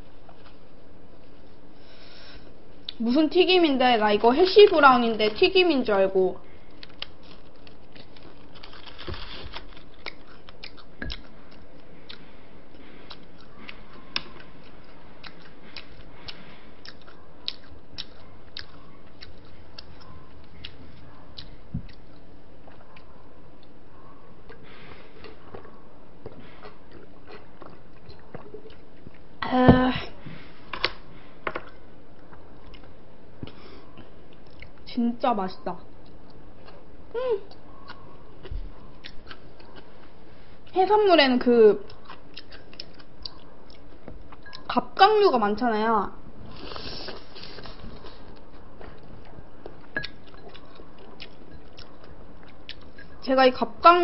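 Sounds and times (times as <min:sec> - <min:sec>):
crunchy chewing: 0:06.5 - 0:29.3, 0:35.9 - 0:40.7, 0:41.8 - 0:44.7, 0:46.5 - 0:53.3.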